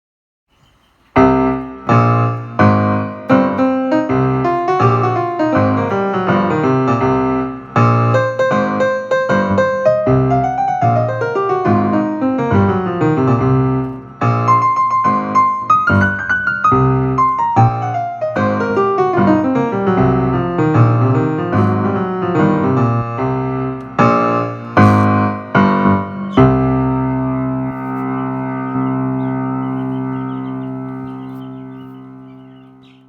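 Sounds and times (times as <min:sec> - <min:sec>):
piano music: 0:01.1 - 0:33.0.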